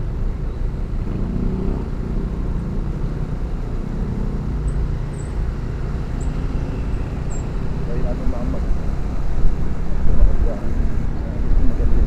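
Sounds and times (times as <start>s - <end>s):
wind noise on microphone: 8.7s - 12.0s.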